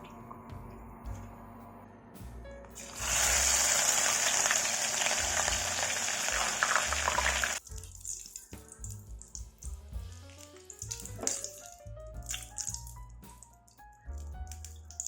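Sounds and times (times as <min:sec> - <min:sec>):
tap water running into sink: 0:02.8 - 0:09.4, 0:10.3 - 0:13.0.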